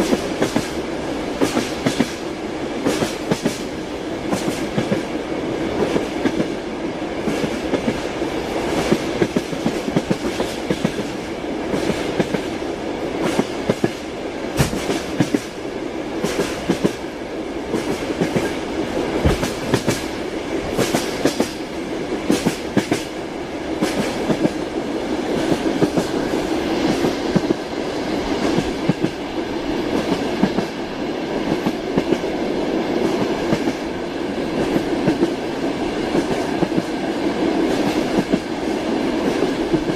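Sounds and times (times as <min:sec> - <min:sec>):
train wheels clattering: 0:01.4 - 0:02.2, 0:02.8 - 0:05.1, 0:07.2 - 0:12.6, 0:13.2 - 0:15.6, 0:16.2 - 0:17.1, 0:17.7 - 0:23.2, 0:23.8 - 0:24.7, 0:25.3 - 0:30.8.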